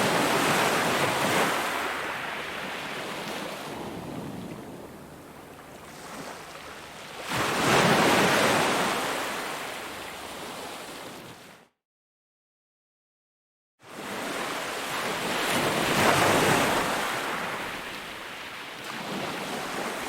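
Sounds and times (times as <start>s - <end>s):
ocean wave breaking: 0.0s - 9.6s, 14.0s - 20.0s.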